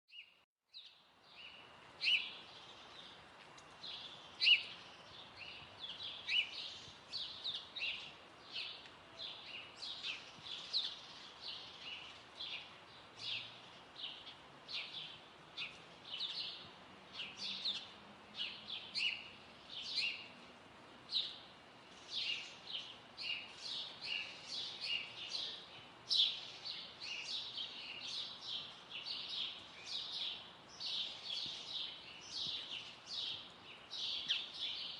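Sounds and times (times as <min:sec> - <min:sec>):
songbirds chirping: 0:00.1 - 0:34.9.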